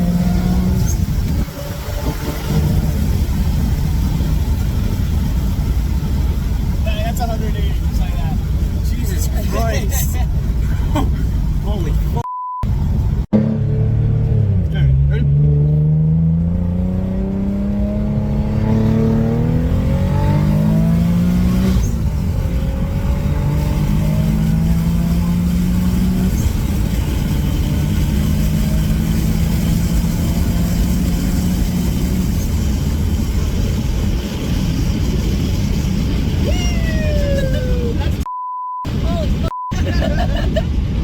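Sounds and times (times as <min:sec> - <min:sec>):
car engine at full throttle: 0:00.0 - 0:38.3, 0:38.9 - 0:41.0
censor bleep: 0:12.2 - 0:12.7, 0:38.3 - 0:39.8.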